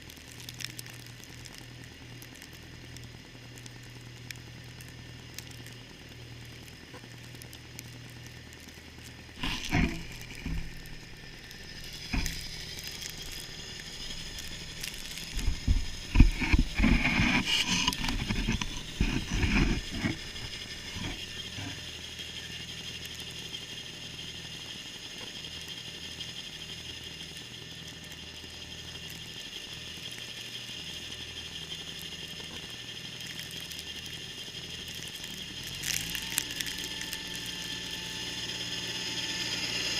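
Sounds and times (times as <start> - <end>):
snowblower engine humming: 0.0 - 39.9
mechanical clatter: 6.4 - 37.6.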